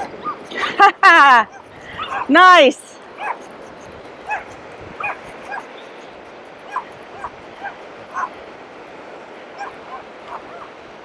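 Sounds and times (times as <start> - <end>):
dog whimpering and yipping: 0.0 - 0.6, 1.5 - 2.3, 3.1 - 3.5, 4.2 - 5.7, 6.6 - 8.4, 9.6 - 10.8
faint surf: 0.0 - 11.0.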